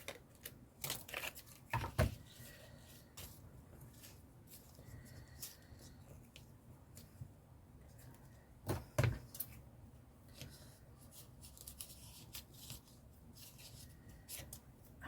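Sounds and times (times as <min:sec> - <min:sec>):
paper rustling: 0:00.0 - 0:07.2, 0:10.3 - 0:14.6.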